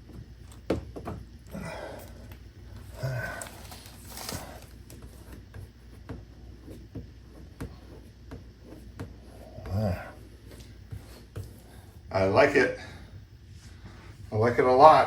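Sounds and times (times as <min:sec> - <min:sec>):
low voice hum: 0:01.5 - 0:04.7, 0:09.0 - 0:15.0.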